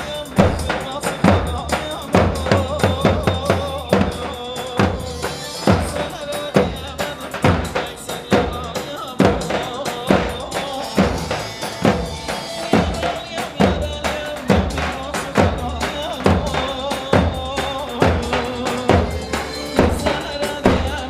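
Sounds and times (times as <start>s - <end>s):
heavy drum beat: 0.0s - 21.0s
electronic keyboard melody: 17.4s - 21.0s.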